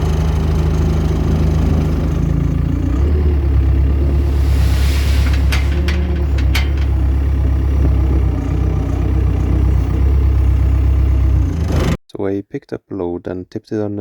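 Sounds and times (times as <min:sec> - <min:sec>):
tractor engine running: 0:00.0 - 0:12.0
sharp metal knocks: 0:05.2 - 0:07.2.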